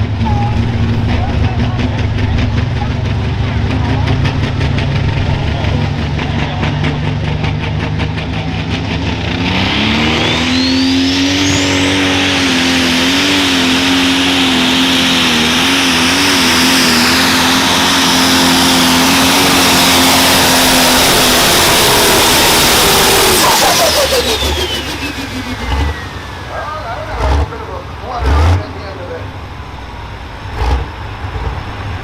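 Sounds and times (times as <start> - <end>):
tractor engine revving: 0.0 - 32.0
turbo whistle: 9.7 - 18.3, 22.8 - 26.2.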